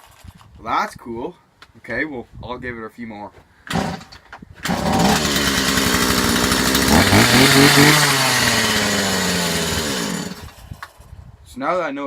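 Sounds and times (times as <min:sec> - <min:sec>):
two-stroke chainsaw running: 0:03.7 - 0:10.6.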